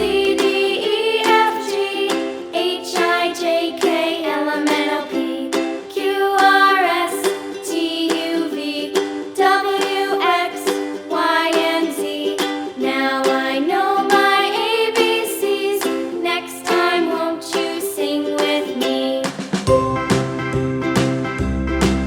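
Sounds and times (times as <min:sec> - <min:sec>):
upbeat plucked-string tune: 0:00.0 - 0:22.0
low bass: 0:19.7 - 0:22.0.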